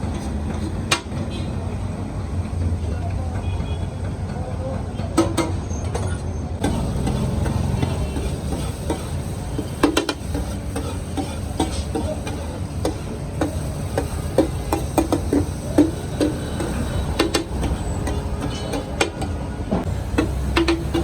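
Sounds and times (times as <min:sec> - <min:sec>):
liver frying on a griddle: 0:06.6 - 0:18.6, 0:19.8 - 0:21.0
metal spatulas scraping a pan: 0:06.6 - 0:19.3.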